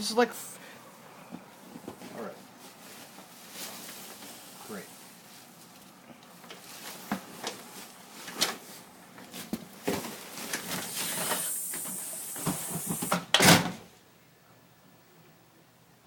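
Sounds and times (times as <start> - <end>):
hiss: 10.8 - 13.2.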